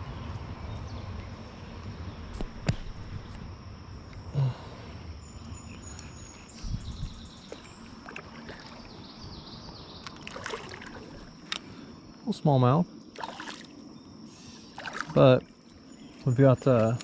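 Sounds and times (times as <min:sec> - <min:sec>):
water splashing around a kayak: 0:07.9 - 0:09.0, 0:10.1 - 0:11.3, 0:13.1 - 0:13.8, 0:14.7 - 0:15.6.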